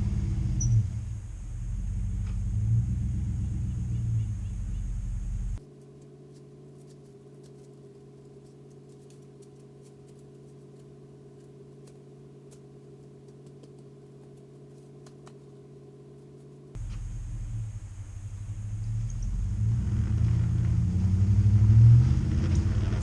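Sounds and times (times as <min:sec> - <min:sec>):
low mechanical hum: 0:00.0 - 0:23.0
faint ticks: 0:05.6 - 0:17.0.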